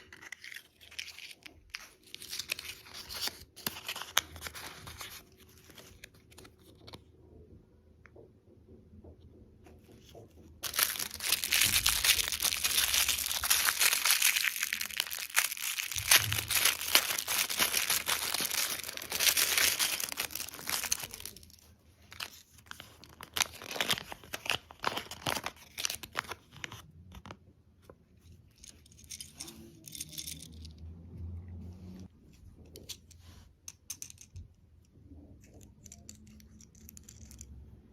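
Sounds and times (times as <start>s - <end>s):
plastic packaging crinkling: 0.0s - 6.6s, 10.6s - 26.8s.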